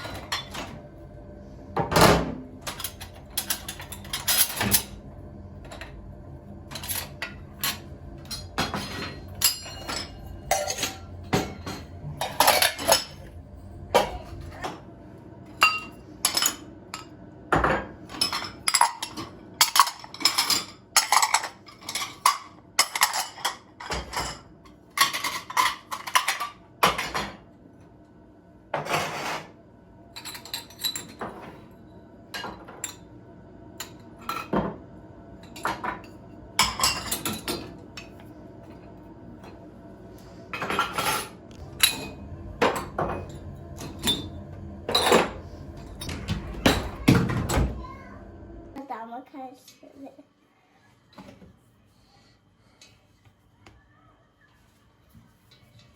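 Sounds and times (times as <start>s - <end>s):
dishes and cutlery clattering: 0.0s - 0.8s, 1.8s - 5.0s, 6.7s - 13.3s, 15.6s - 27.5s, 30.2s - 31.7s, 35.5s - 38.2s, 40.6s - 48.1s.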